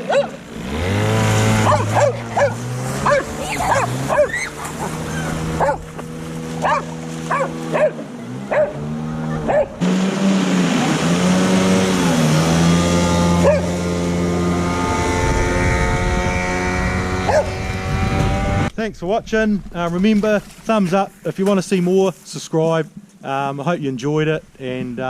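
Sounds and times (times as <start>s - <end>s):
dog barking: 0.0s - 0.4s, 1.6s - 5.9s, 6.6s - 8.8s, 9.4s - 9.8s, 13.4s - 13.7s, 17.2s - 17.6s
boat motor running: 0.0s - 18.8s.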